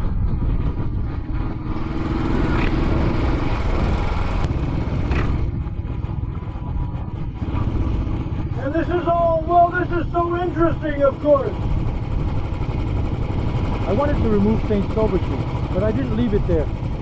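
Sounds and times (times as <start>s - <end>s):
wind noise: 0.0s - 8.6s
motorcycle engine running: 0.0s - 17.0s.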